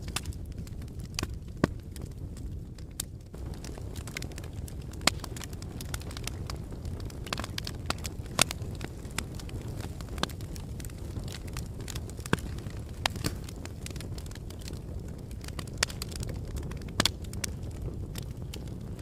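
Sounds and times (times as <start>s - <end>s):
burning wood crackling and popping: 0.0s - 19.0s
fire flames rumbling: 0.0s - 19.0s.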